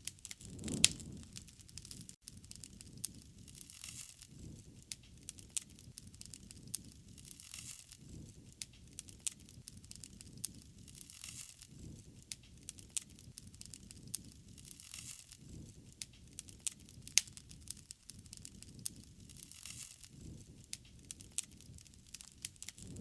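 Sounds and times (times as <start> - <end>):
wood fire crackling: 0.0 - 23.0
low rumble: 22.8 - 23.0.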